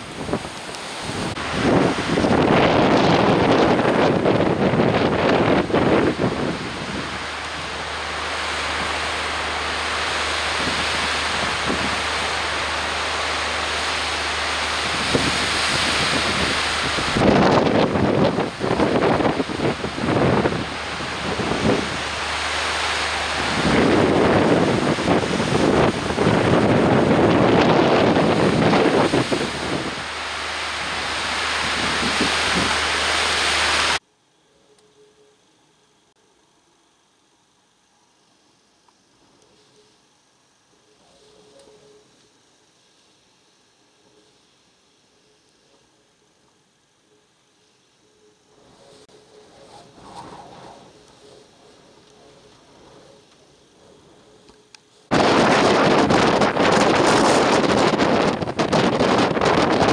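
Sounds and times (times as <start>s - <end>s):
storm wind: 0.0s - 34.0s, 48.6s - 59.9s
surf: 0.0s - 34.0s, 55.1s - 59.9s.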